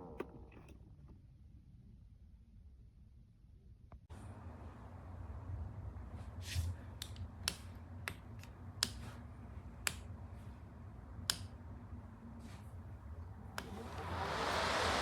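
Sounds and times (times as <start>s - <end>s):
low steady hum: 4.1s - 15.0s.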